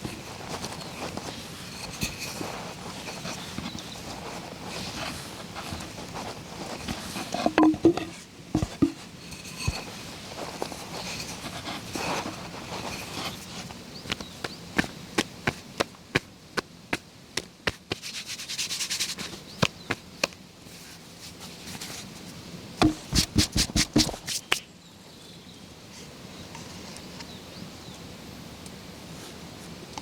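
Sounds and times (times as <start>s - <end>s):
faint outdoor hiss: 0.0s - 30.0s
wood scraping: 0.5s - 14.3s, 22.8s - 24.4s
hand tool knocking wood: 7.4s - 9.0s, 22.8s - 24.2s.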